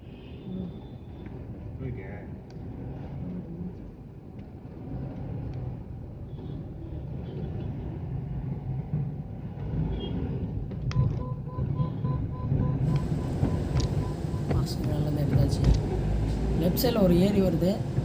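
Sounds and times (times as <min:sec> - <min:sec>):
car engine and road rumble: 0:01.3 - 0:18.0
rapid even beeping: 0:11.2 - 0:16.0.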